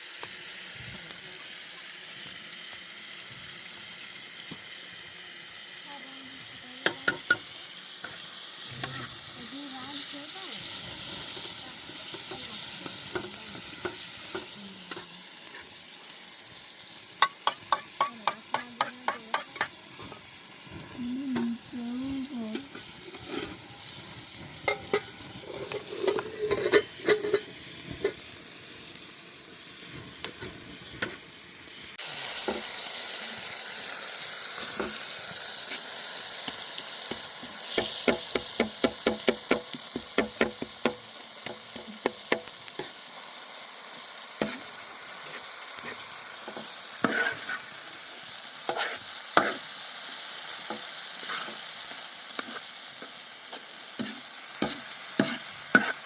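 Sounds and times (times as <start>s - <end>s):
food sizzling in a pan: 0.0s - 56.0s
utensil scraping a pan: 22.5s - 28.2s, 44.4s - 47.7s, 48.7s - 49.7s, 50.8s - 51.6s, 54.0s - 56.0s.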